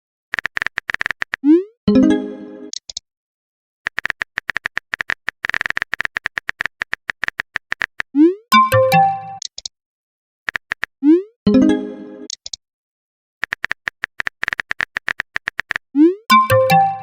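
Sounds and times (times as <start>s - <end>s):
keyboard typing clicks: 0.3s - 1.6s, 3.9s - 9.7s, 10.5s - 11.2s, 13.4s - 17.0s.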